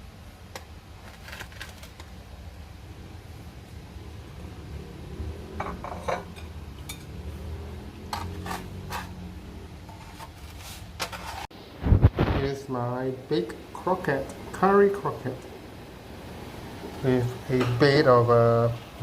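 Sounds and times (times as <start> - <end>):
low steady hum: 0.0 - 19.0
dishes and cutlery clinking: 5.6 - 7.2, 8.1 - 9.2.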